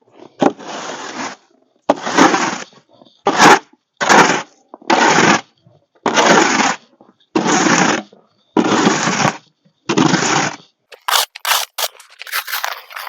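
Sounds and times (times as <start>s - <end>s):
footsteps crunching through snow: 10.9s - 13.0s.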